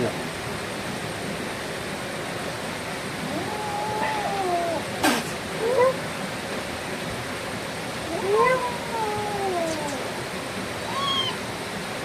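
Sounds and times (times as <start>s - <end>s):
background hiss: 0.0s - 12.0s
animal calling: 3.3s - 6.0s, 8.1s - 10.1s, 10.8s - 11.4s.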